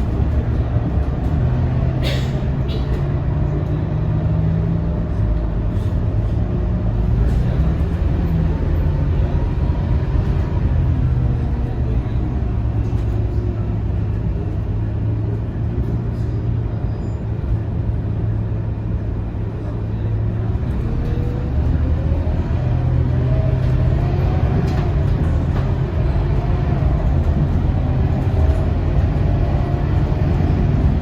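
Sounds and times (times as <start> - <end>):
bus diesel engine running: 0.0 - 31.0.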